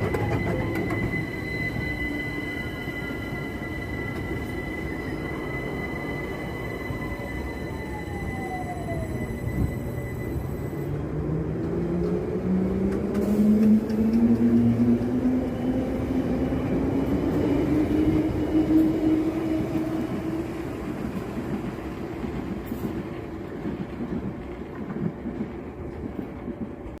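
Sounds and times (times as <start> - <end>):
wheels rumbling on rail: 0.0 - 27.0.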